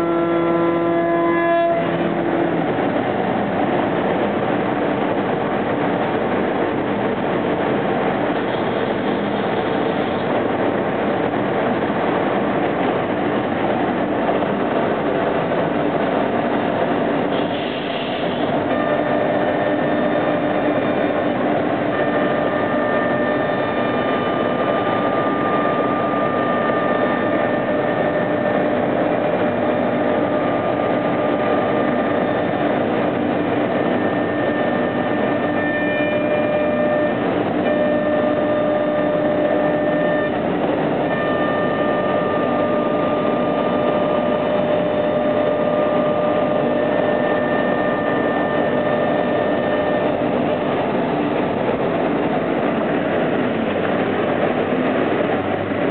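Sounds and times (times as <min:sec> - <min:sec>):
machine spindle whine: 0:00.0 - 0:55.9
machine cutting noise: 0:18.3 - 0:51.0.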